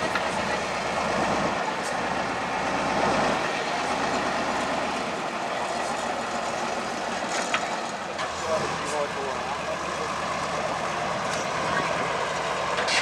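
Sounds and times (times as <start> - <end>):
truck diesel engine running: 0.0 - 13.0.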